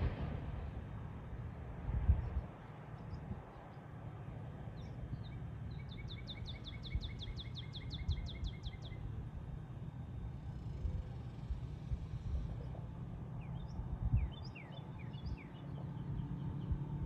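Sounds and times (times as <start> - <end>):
steady low rumble: 0.0 - 17.0
songbird chirping: 4.8 - 9.1, 13.4 - 17.0.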